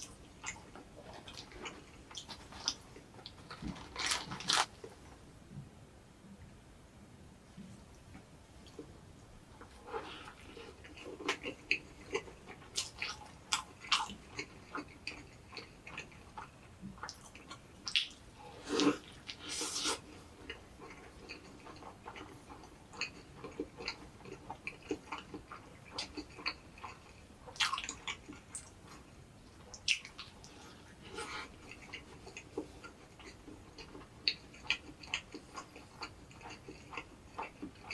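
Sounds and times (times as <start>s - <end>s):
wet chewing with mouth clicks: 9.6s - 37.9s.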